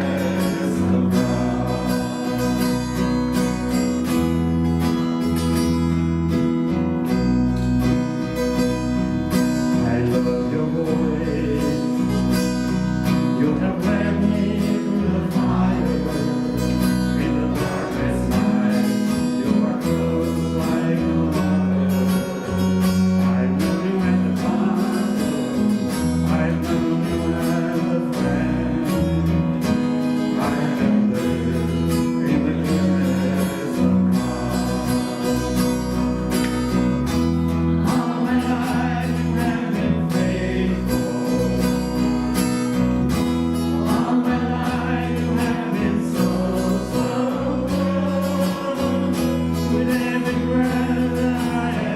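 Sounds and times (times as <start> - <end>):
low bass notes: 0.0 - 51.9
strummed acoustic guitar: 0.0 - 51.9.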